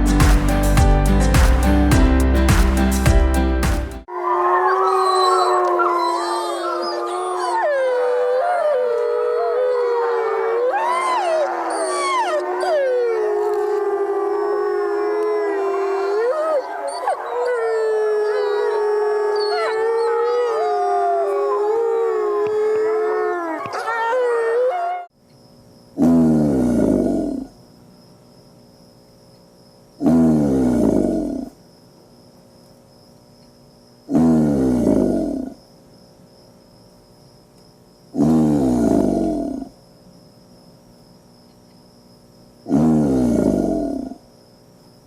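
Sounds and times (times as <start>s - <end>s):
wolves howling: 4.1s - 25.1s.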